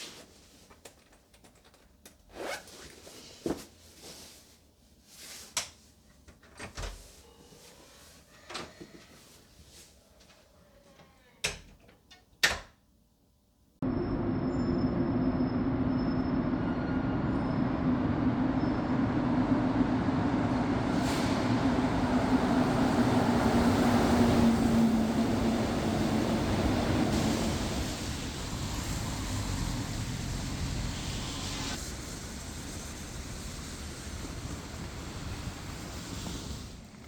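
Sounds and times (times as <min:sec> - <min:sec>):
vehicle rumble from inside: 0:13.8 - 0:37.0.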